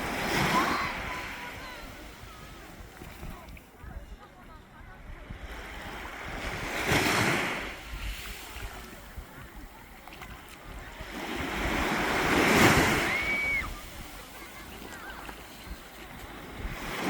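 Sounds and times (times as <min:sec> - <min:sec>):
sea waves breaking: 0:00.0 - 0:17.0
wind buffeting microphone: 0:00.0 - 0:17.0.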